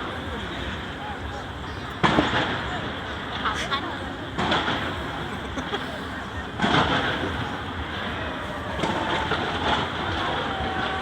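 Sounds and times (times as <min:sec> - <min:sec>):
fireworks bangs and pops: 0:02.0 - 0:02.7, 0:04.4 - 0:05.0, 0:06.6 - 0:07.6, 0:08.7 - 0:10.7.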